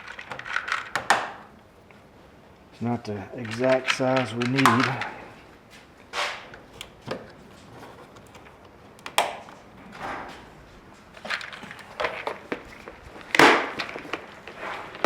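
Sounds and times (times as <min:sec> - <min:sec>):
plastic clips clicking: 0:03.4 - 0:05.2, 0:08.2 - 0:09.4
rustling: 0:09.4 - 0:15.0.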